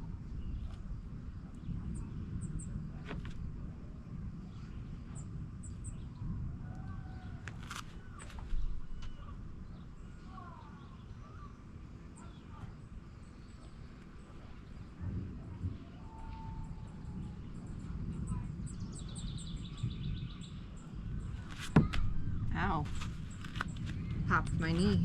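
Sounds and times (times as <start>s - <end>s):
steady low rumble: 0.0s - 25.0s
birds chirping: 16.0s - 25.0s
thump: 21.6s - 22.2s.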